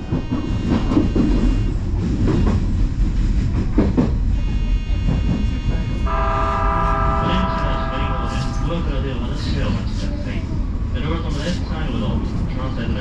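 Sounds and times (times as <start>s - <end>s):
train horn: 0.0s - 1.7s, 4.4s - 9.1s
electric train rumbling: 0.0s - 13.0s.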